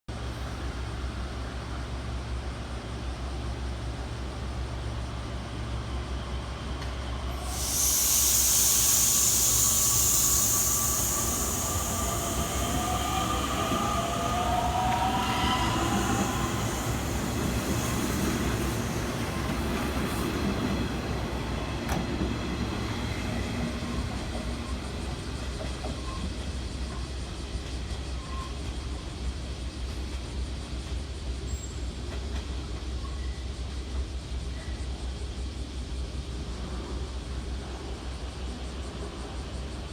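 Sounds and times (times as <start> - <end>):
air hiss burst: 7.3 - 19.4.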